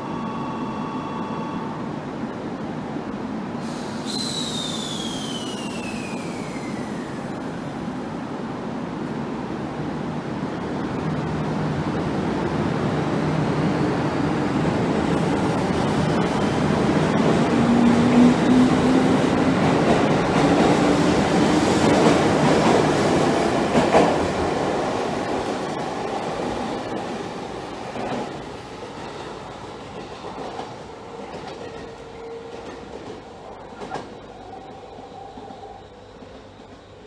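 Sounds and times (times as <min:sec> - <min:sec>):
rumbling train wheels: 0:10.2 - 0:37.0.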